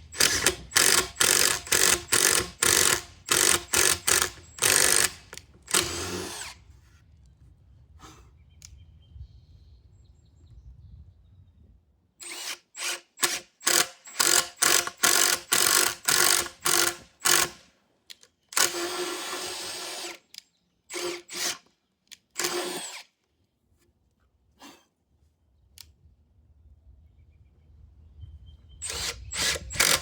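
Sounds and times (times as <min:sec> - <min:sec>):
electric drill boring wood: 0:00.0 - 0:06.6, 0:12.2 - 0:17.6, 0:18.6 - 0:20.2, 0:20.9 - 0:21.6, 0:22.4 - 0:23.0, 0:28.8 - 0:30.0.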